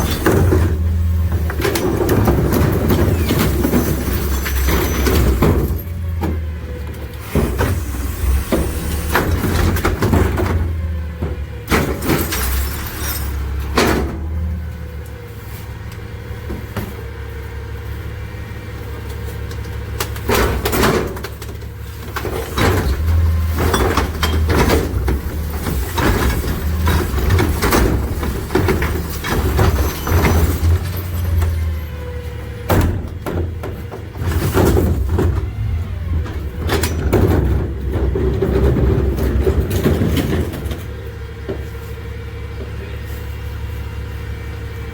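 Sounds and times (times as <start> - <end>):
metal clanks and bangs: 0.0 - 6.6, 7.2 - 14.7, 20.0 - 41.7
garbage truck engine hum: 0.0 - 44.9.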